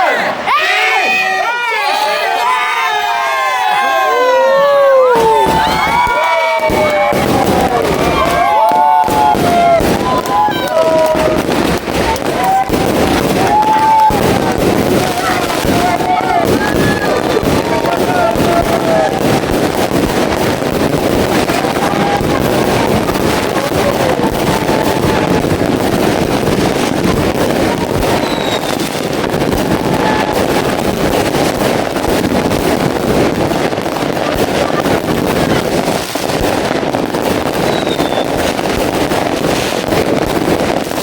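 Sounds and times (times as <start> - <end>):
fireworks crackling: 1.2 - 41.0
faint firework whistles: 28.0 - 29.0, 37.5 - 38.6.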